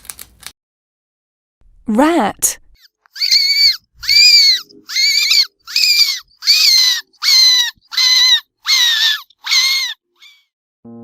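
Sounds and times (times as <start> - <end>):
rat squeaking: 2.8 - 10.5.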